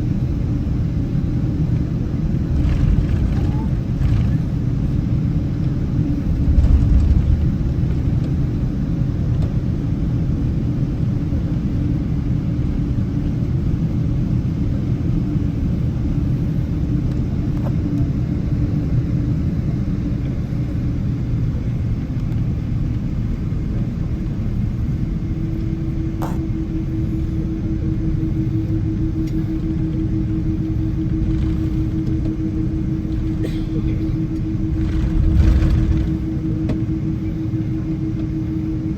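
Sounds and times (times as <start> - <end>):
aircraft cabin rumble: 0.0 - 38.9
steady hum: 15.3 - 38.9.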